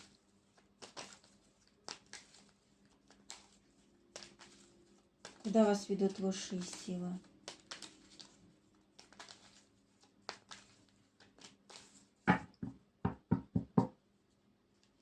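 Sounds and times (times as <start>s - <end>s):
cards rustling and sliding: 0.0s - 12.2s
cards tapping on table: 12.3s - 13.9s.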